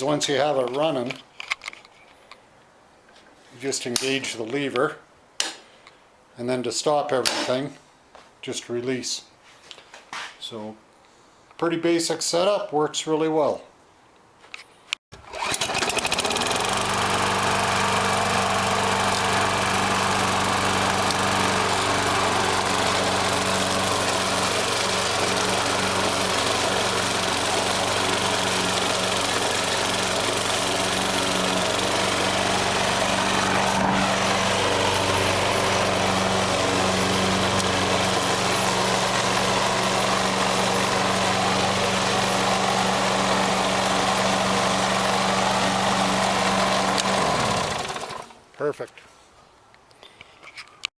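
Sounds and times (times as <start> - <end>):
lawn mower engine running: 15.2 - 48.4.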